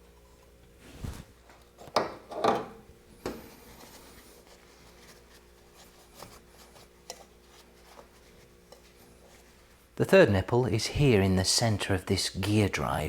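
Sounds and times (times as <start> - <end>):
soft rubbing: 0.0 - 1.5, 3.1 - 10.0.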